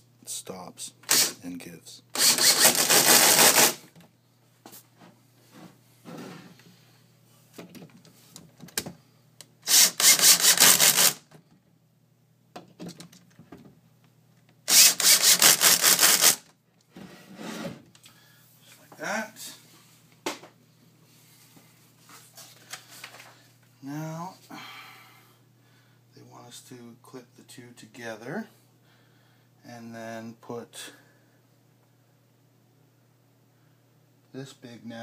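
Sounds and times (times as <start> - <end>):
cordless drill clutch ratcheting: 1.1 - 1.3, 2.2 - 3.8, 9.6 - 11.2, 14.7 - 16.4.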